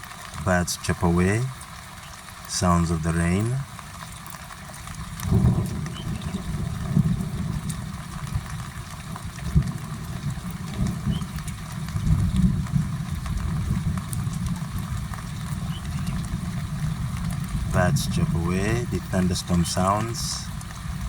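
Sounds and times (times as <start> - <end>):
rain hiss: 0.0 - 21.0
rolling thunder rumble: 4.9 - 21.0.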